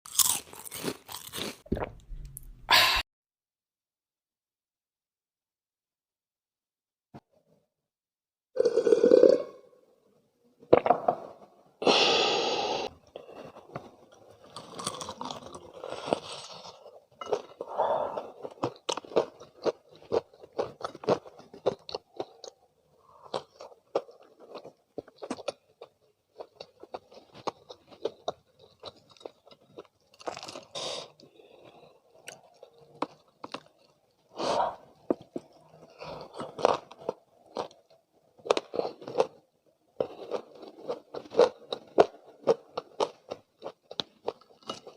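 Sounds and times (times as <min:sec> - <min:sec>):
crunchy chewing of fried chicken: 0:00.1 - 0:01.7, 0:13.1 - 0:44.9.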